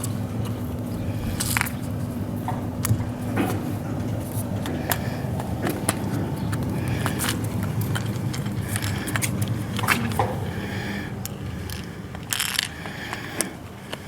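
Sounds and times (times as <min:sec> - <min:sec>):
steady low hum: 0:00.0 - 0:14.0
clicks of small parts: 0:11.2 - 0:14.0.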